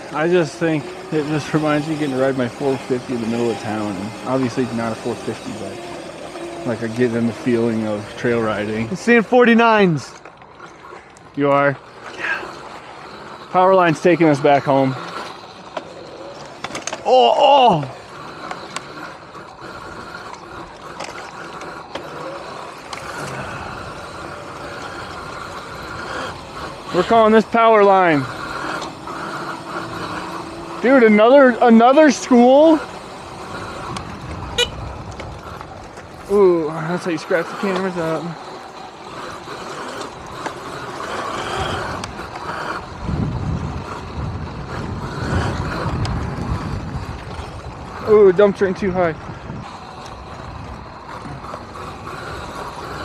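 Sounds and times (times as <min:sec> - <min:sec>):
electric dirt bike rattling: 0:00.0 - 0:53.0
faint high motor whine: 0:00.0 - 0:53.0
wind and tyre rush: 0:17.8 - 0:53.0
wind on camera microphone: 0:42.8 - 0:51.9.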